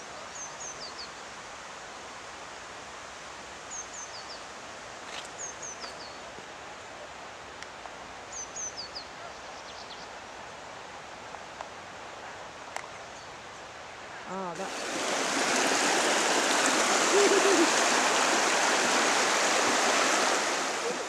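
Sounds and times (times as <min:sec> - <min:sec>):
background hiss: 0:00.0 - 0:21.0
songbird calling: 0:14.2 - 0:21.0.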